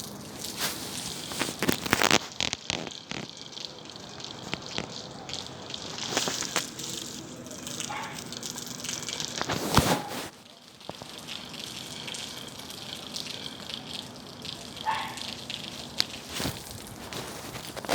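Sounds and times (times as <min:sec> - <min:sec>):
burning wood crackling and popping: 0:00.0 - 0:17.9
flames rushing: 0:09.4 - 0:10.4.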